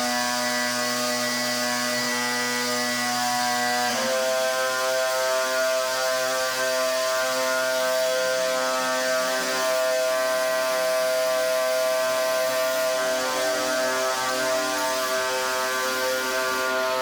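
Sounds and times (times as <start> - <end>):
pressure washer motor drone: 0.0 - 17.0.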